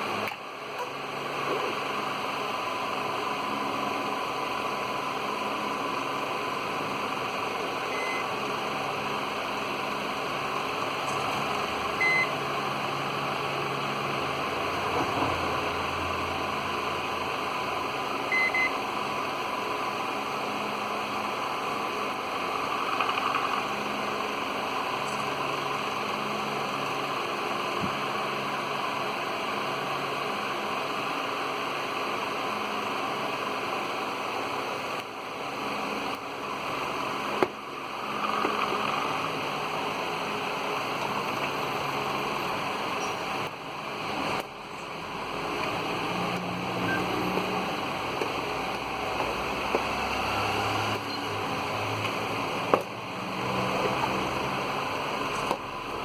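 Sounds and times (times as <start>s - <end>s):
microwave double beep: 7.9s - 8.3s, 12.0s - 12.3s, 18.3s - 18.8s.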